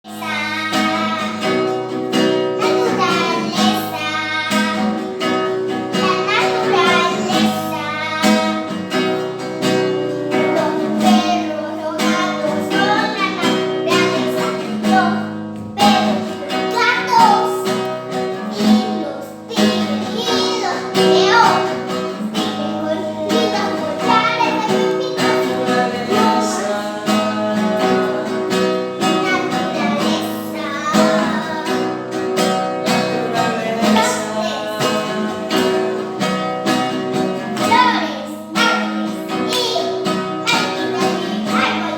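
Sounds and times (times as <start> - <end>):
acoustic guitar chords: 0.0 - 41.9
person singing: 5.9 - 32.1, 32.8 - 36.8.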